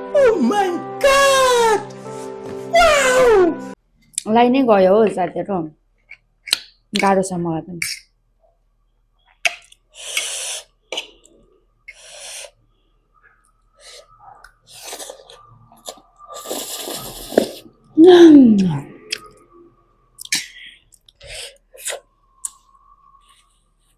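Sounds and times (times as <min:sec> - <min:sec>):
person exclaiming ah: 0:00.1 - 0:01.9, 0:18.0 - 0:18.8
person breathing sharply hissing: 0:09.9 - 0:10.8, 0:11.9 - 0:12.7.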